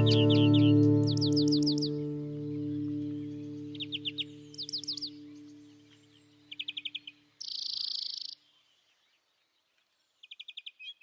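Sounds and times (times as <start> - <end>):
guitar chord: 0.0 - 5.8
bird chirping trills: 0.0 - 9.4.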